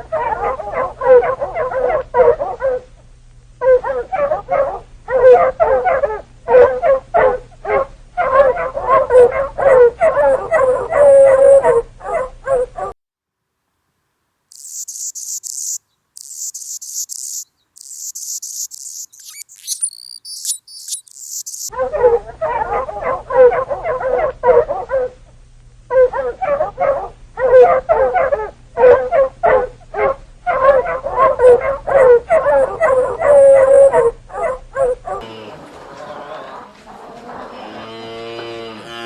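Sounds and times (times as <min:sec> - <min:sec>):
dog howling and yipping: 0:03.6 - 0:12.9, 0:17.8 - 0:25.2, 0:25.9 - 0:35.2
high hissing bursts: 0:14.5 - 0:21.7.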